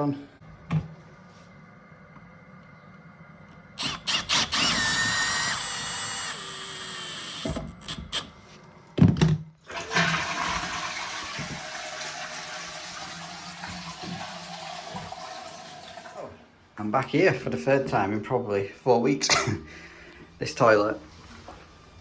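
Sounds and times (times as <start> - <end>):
toilet flushing water rush: 9.6 - 16.6, 20.6 - 22.0
toilet flush clicks: 9.7 - 16.4.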